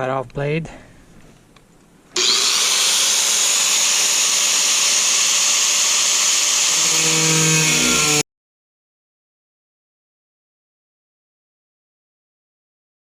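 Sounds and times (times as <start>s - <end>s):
angle grinder cutting sheet metal: 2.2s - 8.2s.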